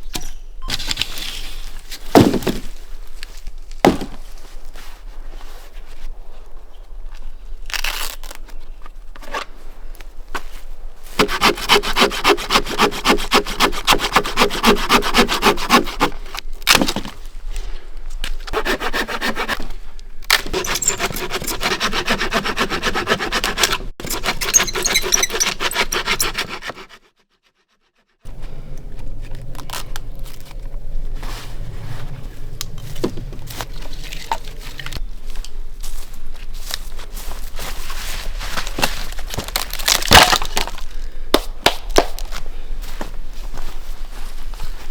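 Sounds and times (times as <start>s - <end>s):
hand saw cutting wood: 11.2s - 16.4s, 18.5s - 27.7s
scraping and rubbing: 20.5s - 27.2s, 28.3s - 35.0s.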